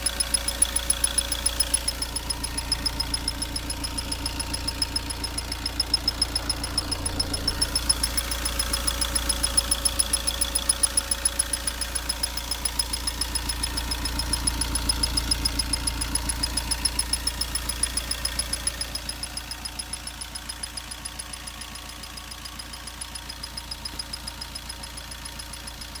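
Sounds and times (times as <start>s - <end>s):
rapid ticking knock: 0.0s - 19.4s
diesel engine idling: 0.0s - 26.0s.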